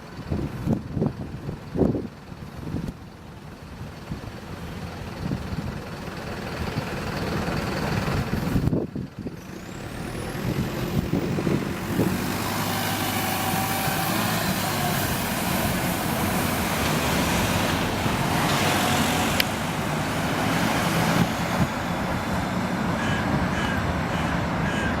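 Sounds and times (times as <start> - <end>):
bus engine hum: 0.0 - 25.0
road noise: 0.0 - 25.0
high-pitched rising glide: 9.5 - 22.6.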